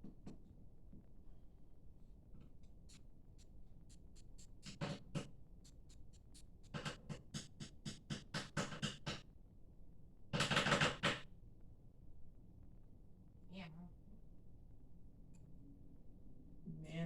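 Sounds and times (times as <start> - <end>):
quick irregular taps and clicks: 2.4 - 9.3, 10.3 - 11.2.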